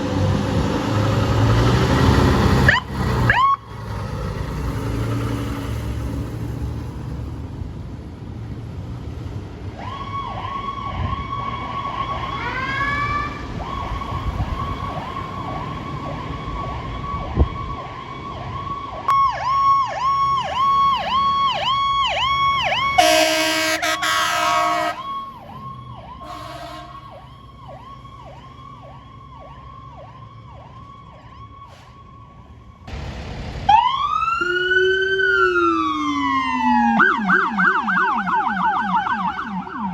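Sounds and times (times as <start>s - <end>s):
vehicle engine passing: 0.0s - 9.7s
siren wail: 2.4s - 3.8s, 9.7s - 33.0s, 33.6s - 39.9s
electronic siren yelp: 9.8s - 32.8s, 33.7s - 39.9s
vehicle horn blast: 23.0s - 25.0s, 26.2s - 27.1s.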